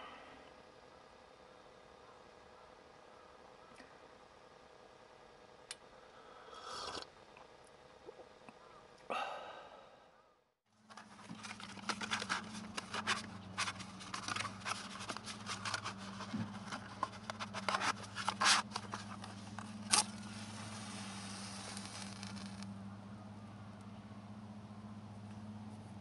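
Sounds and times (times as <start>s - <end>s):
steady low hum: 0.0s - 26.0s
clicks and scrapes of handling: 10.9s - 22.7s.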